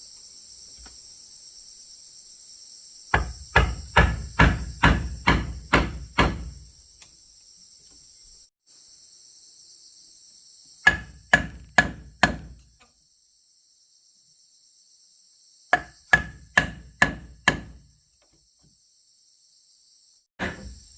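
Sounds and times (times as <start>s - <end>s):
high drone of insects: 0.0s - 20.9s
hammer blows on wood: 3.1s - 6.6s, 10.8s - 12.6s, 15.7s - 17.9s.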